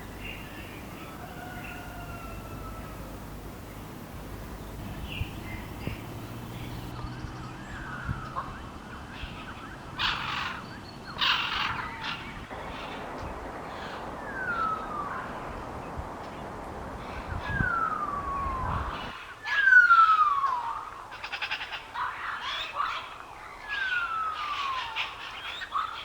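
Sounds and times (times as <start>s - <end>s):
harsh bird calls: 0.0s - 6.9s
steady background hiss: 0.0s - 6.9s, 10.6s - 20.7s
faint bird chirps: 0.0s - 7.5s.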